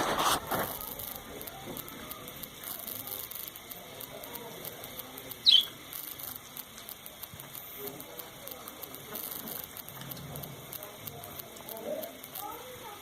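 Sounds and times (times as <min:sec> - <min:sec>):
faint steady hiss: 0:00.0 - 0:13.0
bird high chirp: 0:05.4 - 0:05.8.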